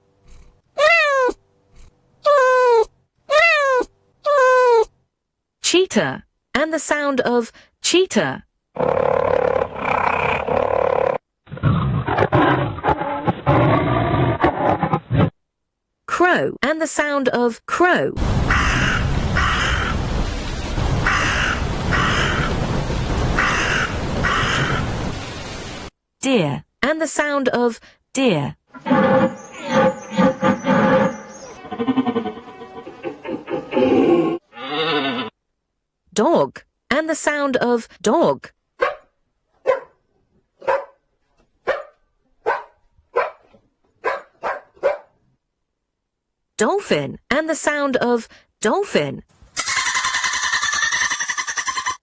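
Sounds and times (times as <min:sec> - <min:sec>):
crow cawing: 0:18.5 - 0:20.0, 0:21.0 - 0:22.5, 0:23.4 - 0:24.9
dog barking: 0:38.8 - 0:40.0, 0:40.6 - 0:41.0, 0:41.6 - 0:45.2.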